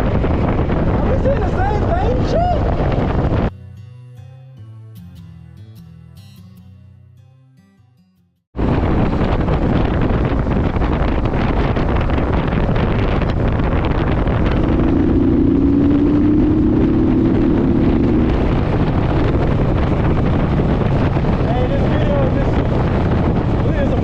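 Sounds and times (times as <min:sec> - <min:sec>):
wind buffeting microphone: 0:00.0 - 0:03.5, 0:08.6 - 0:24.0
motorcycle engine rumbling: 0:08.6 - 0:24.0.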